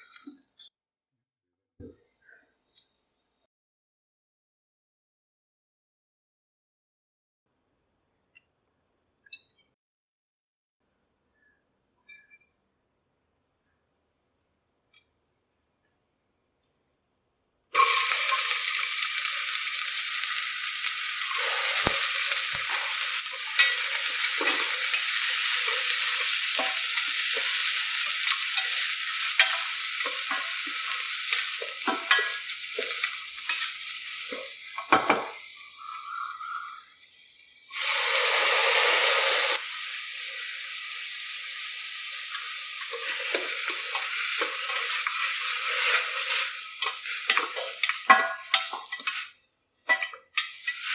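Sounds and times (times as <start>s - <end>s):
food sizzling in oil: 17.8s - 50.9s
spoon clicking and scraping pan: 21.3s - 35.3s, 42.3s - 50.9s.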